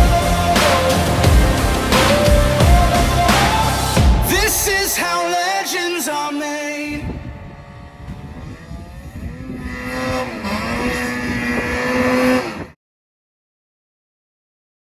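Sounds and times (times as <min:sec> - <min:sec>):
snowmobile engine revving: 0:00.0 - 0:12.8.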